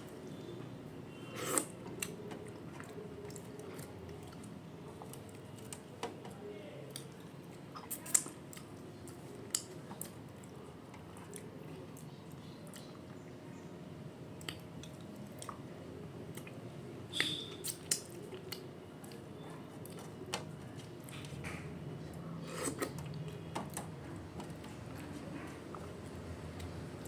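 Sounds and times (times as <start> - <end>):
person chewing food: 1.2 - 5.9, 6.9 - 13.2, 14.4 - 15.7, 16.3 - 16.6, 17.2 - 23.8.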